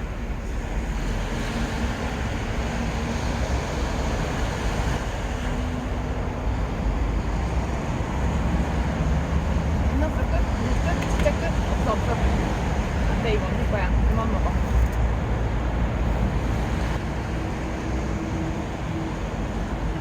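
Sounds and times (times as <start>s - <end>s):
sea surf: 0.0s - 14.5s
wind rumble on microphone: 0.0s - 20.0s.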